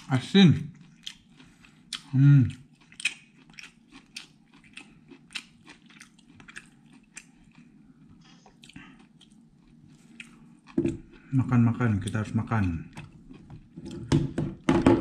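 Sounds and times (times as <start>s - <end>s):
low steady hum: 0.0s - 15.0s
person chewing and biting food: 0.8s - 11.3s.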